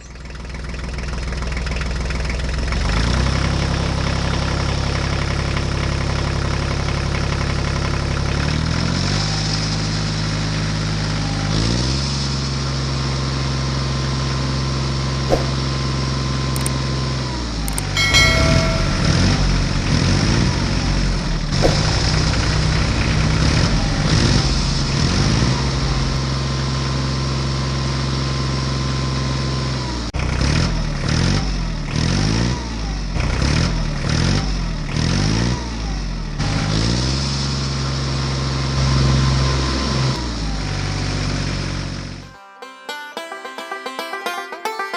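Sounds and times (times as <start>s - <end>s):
small tractor engine running: 0.0s - 11.3s.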